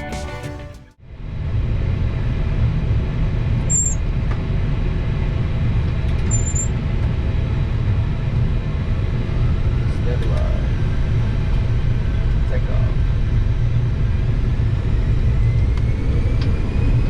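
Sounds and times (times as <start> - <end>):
cockpit rumble: 1.3 - 17.0
high-pitched beeps: 3.7 - 4.0.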